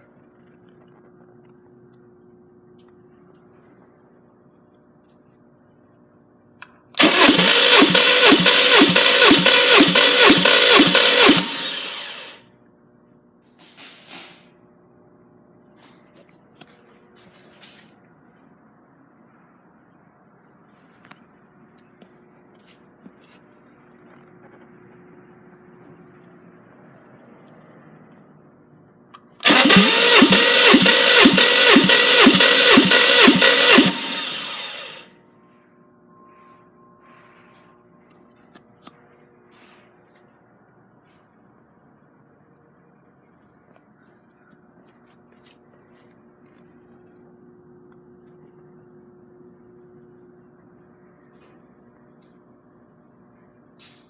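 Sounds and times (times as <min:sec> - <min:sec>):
engine cranking on starter: 0:07.0 - 0:12.4, 0:29.2 - 0:35.1
short whir: 0:07.0 - 0:12.4, 0:29.4 - 0:35.1.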